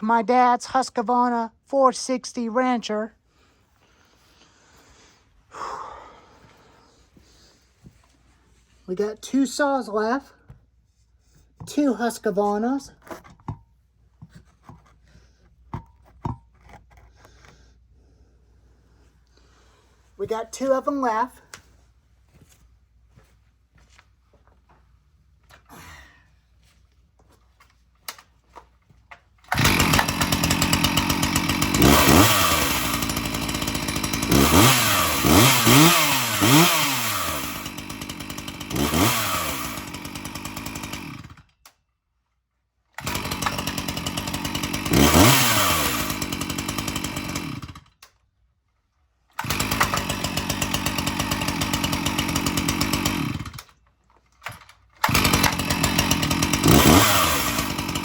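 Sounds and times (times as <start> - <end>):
chainsaw engine revving: 29.5 - 41.5, 43.0 - 47.9, 49.4 - 53.8, 54.5 - 58.0.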